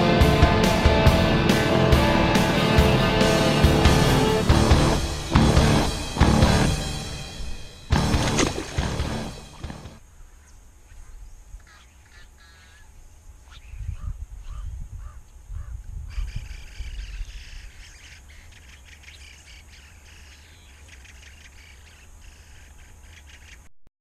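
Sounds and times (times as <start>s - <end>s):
birds chirping and calling: 7.4s - 23.7s
wind buffeting microphone: 13.7s - 17.8s.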